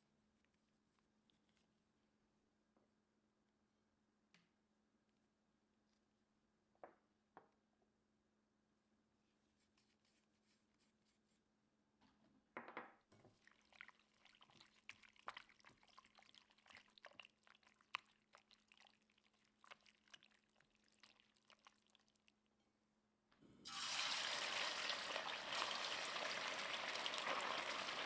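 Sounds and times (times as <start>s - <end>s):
liquid pouring: 13.2s - 22.4s, 23.6s - 28.0s.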